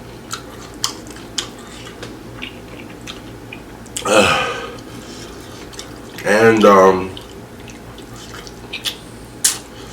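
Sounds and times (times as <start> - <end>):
chewing crunchy taco shell: 0.0 - 4.1, 4.7 - 9.9
short vocal sound falling in pitch: 4.0 - 4.8.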